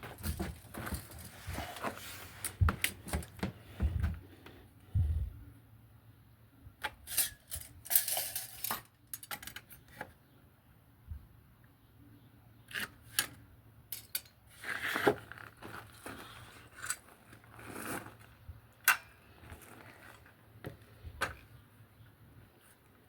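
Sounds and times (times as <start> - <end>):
scraping rustles: 0.0 - 4.4.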